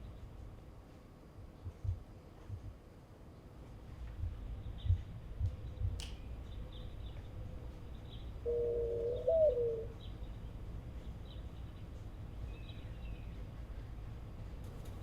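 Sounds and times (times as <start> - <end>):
steady low rumble: 0.0 - 8.5, 9.8 - 15.0
dove cooing: 8.4 - 10.0.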